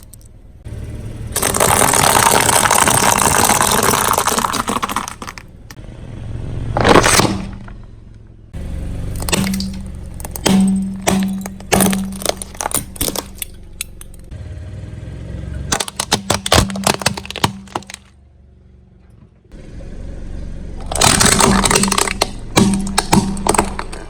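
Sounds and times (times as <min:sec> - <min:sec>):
tyre crushing brittle objects: 0:00.0 - 0:00.2, 0:01.4 - 0:05.8, 0:06.8 - 0:07.8, 0:08.9 - 0:14.3, 0:15.7 - 0:18.1, 0:20.8 - 0:24.0
low steady hum: 0:07.4 - 0:14.3.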